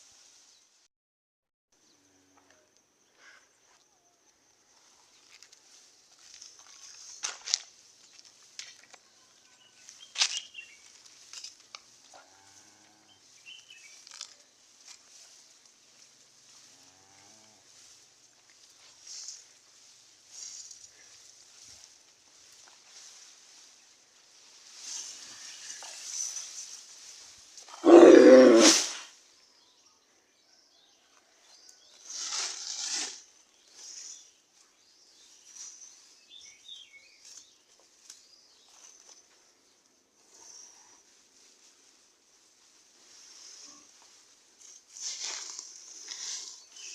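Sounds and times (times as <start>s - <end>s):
faint rustling: 3.2s - 29.1s
cow low call: 27.7s - 29.0s.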